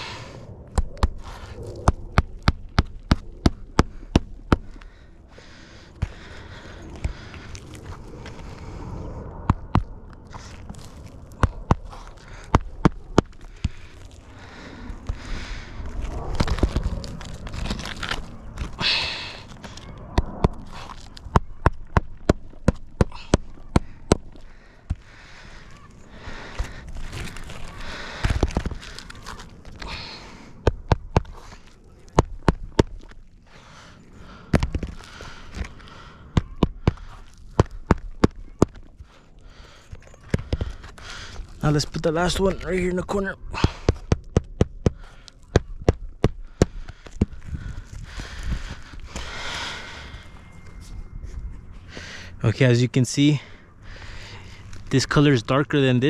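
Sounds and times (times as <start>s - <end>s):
scraping and rustling on shingles: 0.0s - 44.3s.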